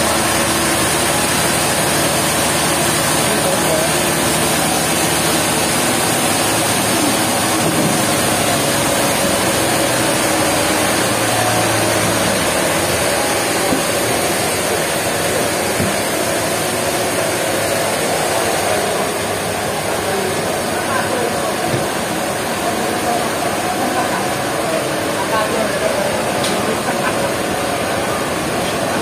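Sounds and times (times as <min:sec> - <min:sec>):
sawmill machinery running: 0:00.0 - 0:29.0.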